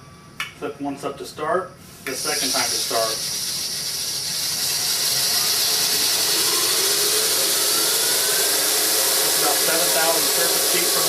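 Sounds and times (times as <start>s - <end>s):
belt grinder running: 2.2s - 11.0s.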